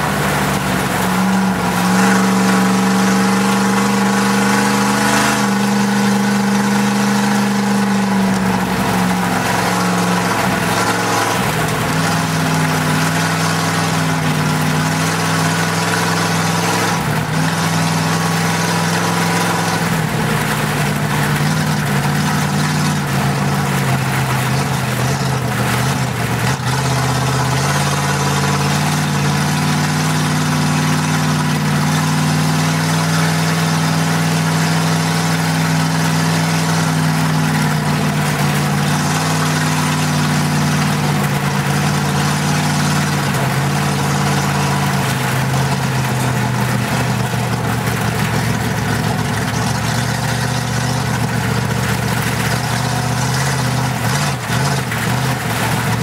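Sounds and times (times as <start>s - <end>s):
car engine running: 0.0s - 56.0s
road and wind noise: 0.0s - 56.0s.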